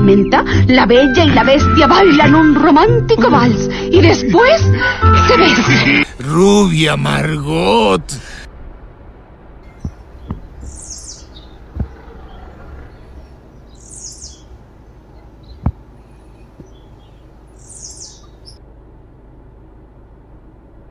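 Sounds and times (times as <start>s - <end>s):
low background noise: 6.0s - 20.9s
bird chirping: 9.6s - 18.6s
soft thump: 9.8s - 10.5s, 11.7s - 12.0s, 15.5s - 15.9s.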